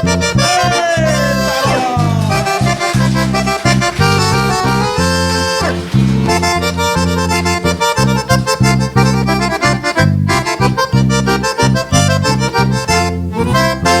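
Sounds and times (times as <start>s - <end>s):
band playing instrumental music: 0.8s - 11.6s
pulsing bass line: 1.3s - 12.2s.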